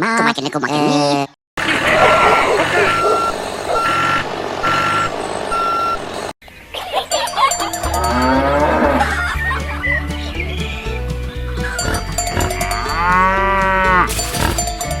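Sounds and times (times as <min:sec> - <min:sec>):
vehicle reversing alarm beeping: 0:02.0 - 0:06.3
cow mooing: 0:08.0 - 0:09.2, 0:11.8 - 0:14.7.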